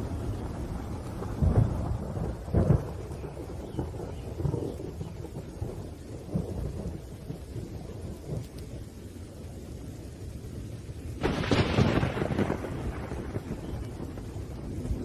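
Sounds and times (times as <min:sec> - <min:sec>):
rolling thunder: 0:00.0 - 0:15.0
steady rain: 0:00.0 - 0:15.0
thunder crack: 0:11.2 - 0:15.0.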